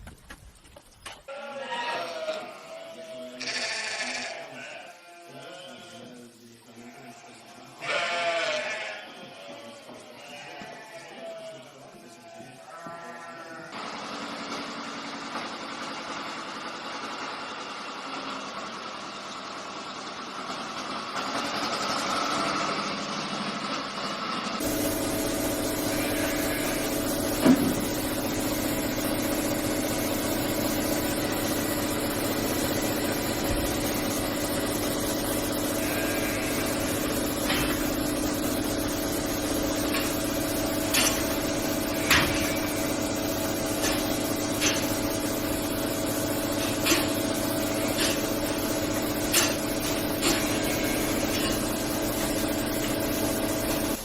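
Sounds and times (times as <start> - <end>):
machine humming: 24.5 - 54.0.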